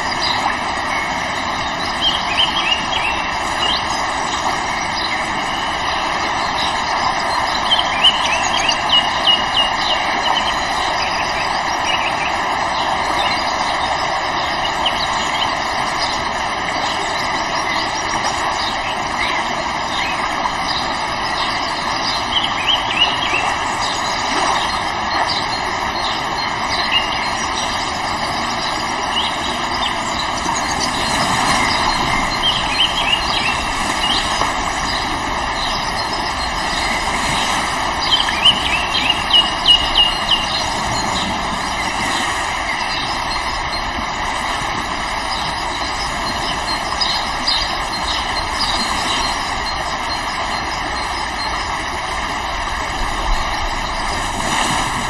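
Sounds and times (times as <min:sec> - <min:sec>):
river water rushing: 0:00.0 - 0:55.0
high bird chirps: 0:22.1 - 0:42.0.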